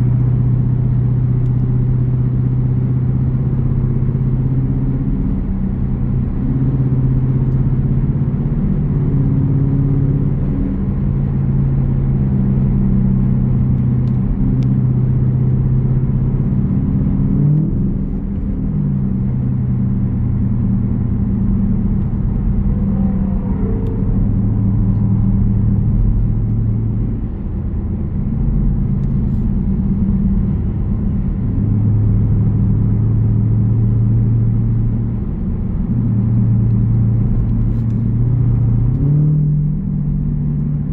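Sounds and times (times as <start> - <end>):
car exhaust rumbling: 0.0 - 40.9.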